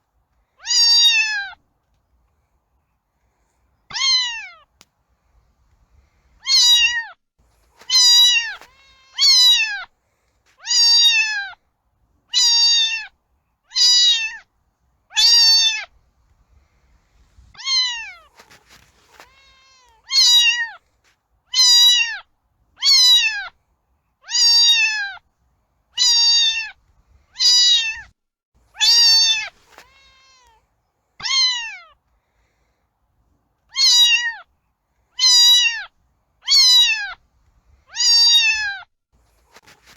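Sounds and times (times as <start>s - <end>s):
cat meowing: 0.6s - 1.6s, 3.9s - 4.6s, 6.4s - 7.2s, 7.8s - 9.9s, 10.6s - 11.6s, 12.3s - 13.1s, 13.7s - 14.4s, 15.1s - 15.9s, 17.6s - 20.8s, 21.5s - 22.2s, 22.8s - 23.5s, 24.2s - 25.2s, 26.0s - 26.8s, 27.4s - 28.1s, 28.8s - 32.0s, 33.7s - 34.5s, 35.2s - 37.2s, 37.9s - 38.9s.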